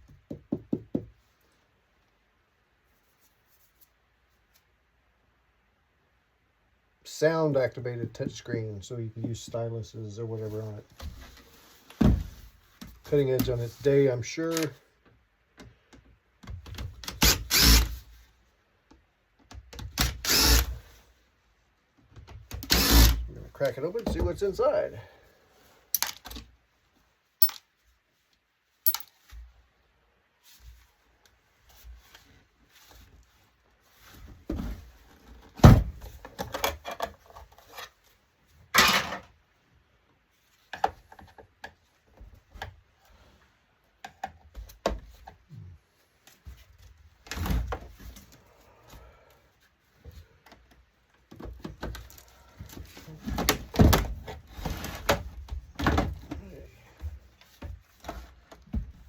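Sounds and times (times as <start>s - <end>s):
clatter of tools and parts: 27.4s - 27.7s, 28.8s - 29.5s.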